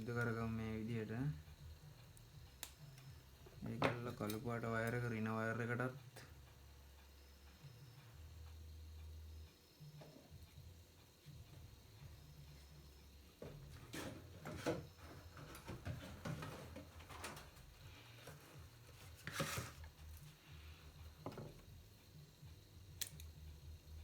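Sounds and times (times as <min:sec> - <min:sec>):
low steady hum: 0:00.0 - 0:24.0
wires and small tools handled: 0:13.4 - 0:20.4.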